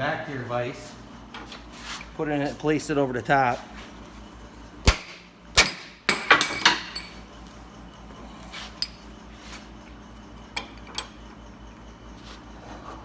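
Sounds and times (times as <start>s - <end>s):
metal knocks and clinks in vise: 5.6s - 7.2s, 10.6s - 11.2s.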